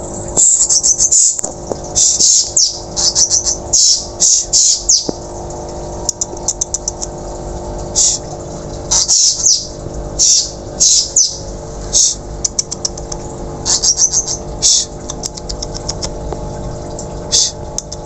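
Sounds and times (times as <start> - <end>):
steady low hum: 0.0 - 18.0
thrush calling: 2.0 - 5.1, 8.9 - 12.9, 13.6 - 16.1, 17.3 - 17.6.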